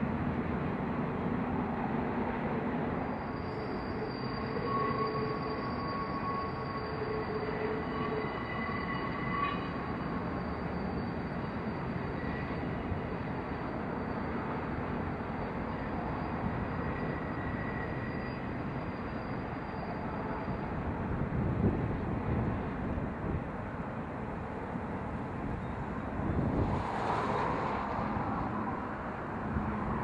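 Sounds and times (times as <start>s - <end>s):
high wheel squeals: 3.0s - 20.9s.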